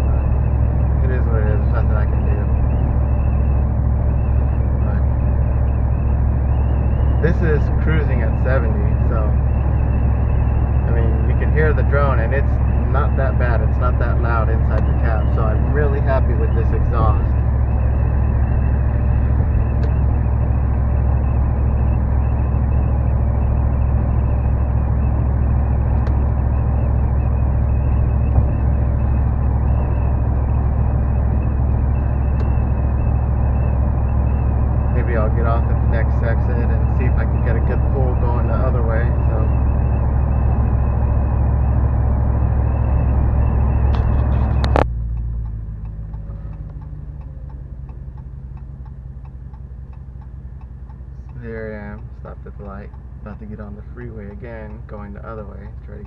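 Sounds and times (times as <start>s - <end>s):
engine idling: 0.0s - 56.0s
low exhaust drone inside cab: 0.0s - 56.0s
road and wind noise: 0.0s - 56.0s
turn signal ticking: 0.0s - 56.0s
click: 43.9s - 56.0s.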